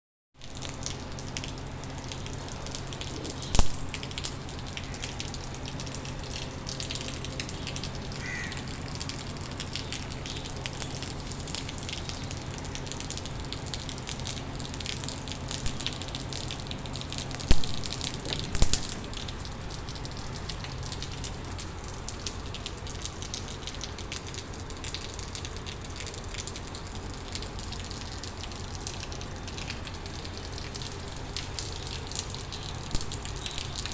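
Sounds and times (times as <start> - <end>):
rain falling: 0.4 - 33.9.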